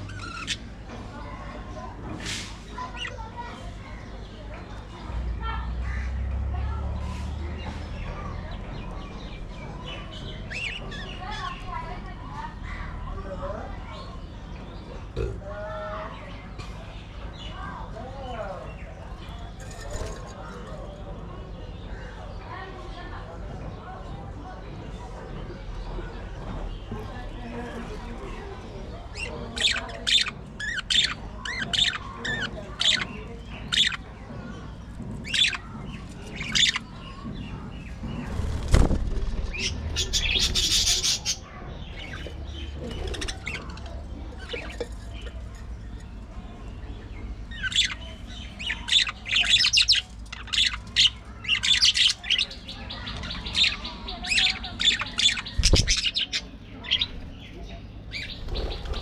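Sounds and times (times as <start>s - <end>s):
budgies squawking: 0.0s - 0.7s, 10.0s - 11.8s, 29.1s - 34.1s, 35.2s - 37.1s, 39.5s - 45.4s, 47.5s - 57.4s
budgies chirping: 0.0s - 15.4s, 24.7s - 59.0s.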